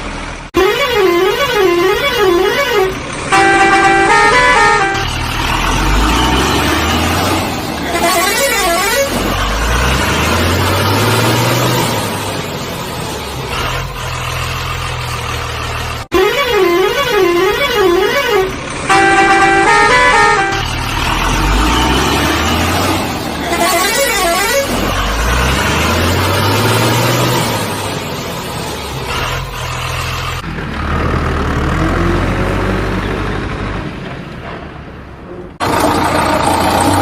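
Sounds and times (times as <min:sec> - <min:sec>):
heavy engine revving: 0:00.0 - 0:37.0
vehicle horn playing a tune: 0:00.6 - 0:05.2, 0:07.9 - 0:09.2, 0:16.1 - 0:20.7, 0:23.4 - 0:24.8.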